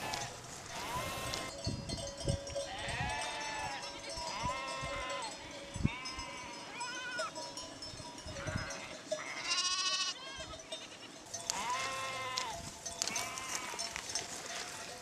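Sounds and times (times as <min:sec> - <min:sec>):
sheep bleating: 0:00.0 - 0:01.5, 0:08.4 - 0:13.9.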